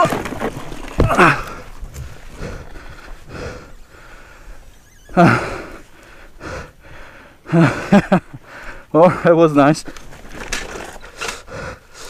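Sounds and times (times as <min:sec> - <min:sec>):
man breathing hard: 0:01.2 - 0:04.6, 0:05.2 - 0:09.3, 0:11.1 - 0:12.0
man sighing: 0:05.1 - 0:05.8.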